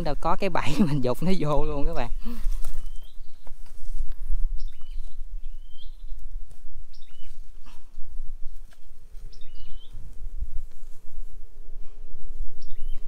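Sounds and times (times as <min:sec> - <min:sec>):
rustling and handling noise: 0:01.2 - 0:05.3, 0:06.1 - 0:11.4
small bird chirping: 0:01.6 - 0:10.2, 0:12.6 - 0:13.0.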